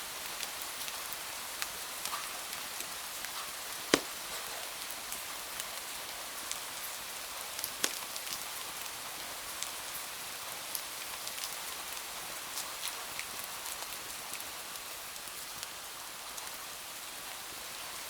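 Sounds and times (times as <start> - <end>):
sharp ticks and pops: 7.6 - 8.4.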